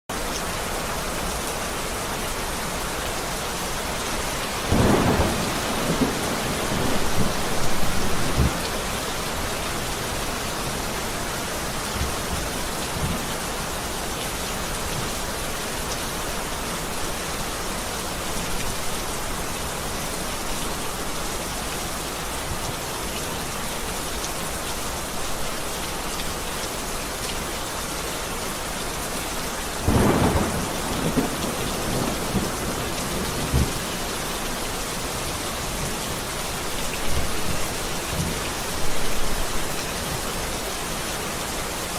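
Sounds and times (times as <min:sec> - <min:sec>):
heavy rain falling: 0:00.1 - 0:41.9
thunder rolling: 0:04.6 - 0:08.8, 0:29.8 - 0:33.8
faint low thunder rumbles: 0:04.6 - 0:09.8, 0:29.8 - 0:34.2.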